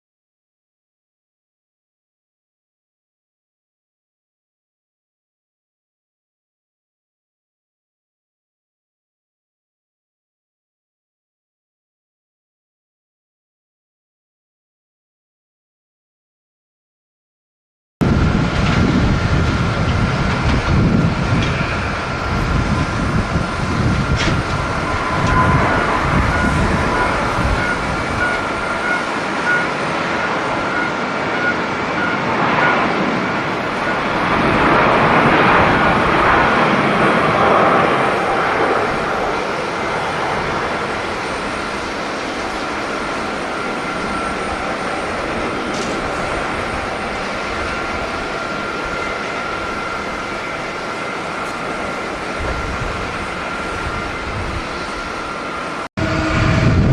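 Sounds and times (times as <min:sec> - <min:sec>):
jet engines whining: 0:18.0 - 0:56.9
wind buffeting microphone: 0:18.0 - 0:56.9.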